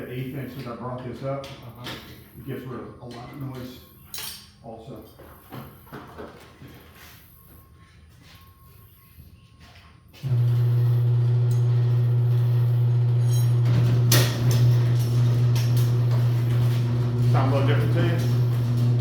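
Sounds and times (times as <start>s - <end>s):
garage door opener humming: 10.2s - 19.0s.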